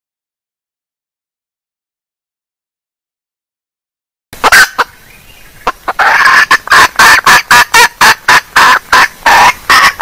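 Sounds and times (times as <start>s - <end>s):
junglefowl clucking: 4.4s - 5.0s, 5.6s - 10.0s
junglefowl calling: 4.4s - 10.0s.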